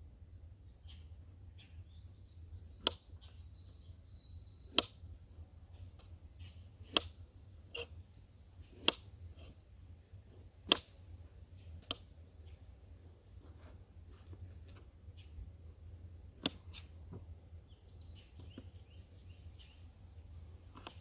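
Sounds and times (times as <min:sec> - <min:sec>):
faint bird chirps: 0:00.0 - 0:10.2, 0:11.0 - 0:21.0.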